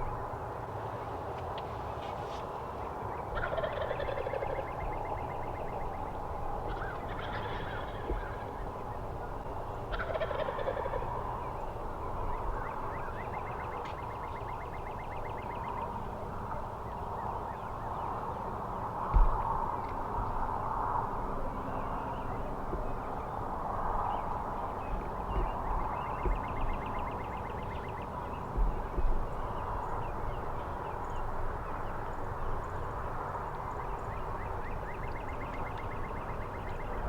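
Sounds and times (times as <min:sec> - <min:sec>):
turkeys gobbling: 0:03.4 - 0:04.6, 0:06.7 - 0:08.4, 0:09.9 - 0:11.0.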